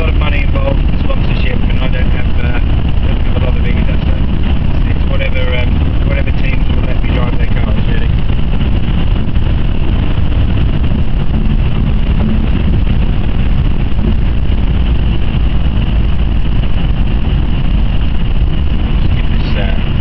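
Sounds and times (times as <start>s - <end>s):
car engine drone: 0.0s - 20.0s
tyre and road noise: 0.0s - 20.0s.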